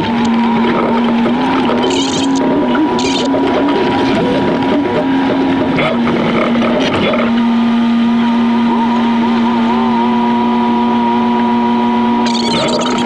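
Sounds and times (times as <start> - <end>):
sped-up engine drone: 0.0 - 13.0.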